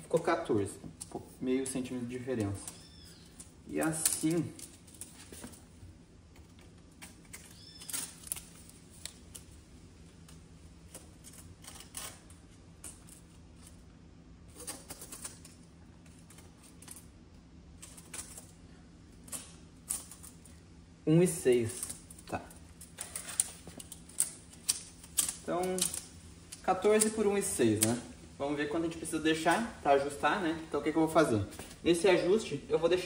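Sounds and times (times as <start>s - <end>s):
faint hum: 0.0s - 33.0s.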